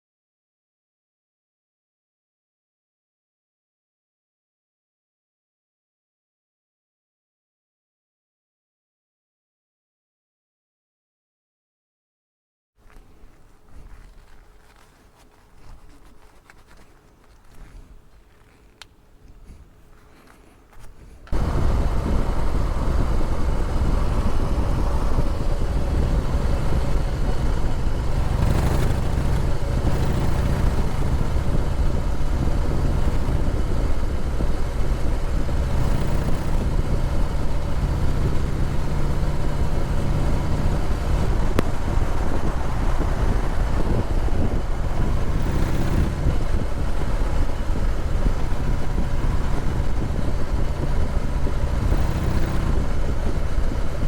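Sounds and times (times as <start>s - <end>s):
motorcycle engine running: 21.2s - 54.0s.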